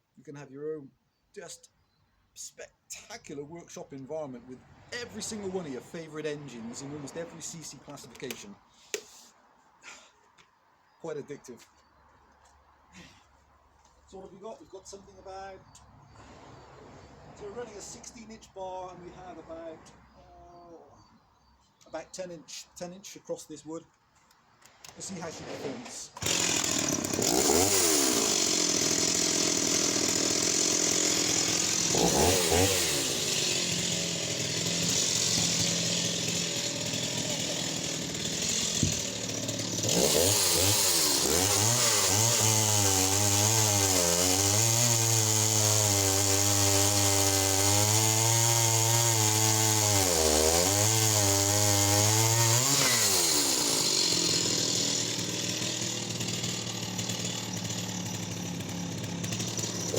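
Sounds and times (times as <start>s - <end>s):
chainsaw cutting log: 5.0s - 9.2s, 24.7s - 59.9s.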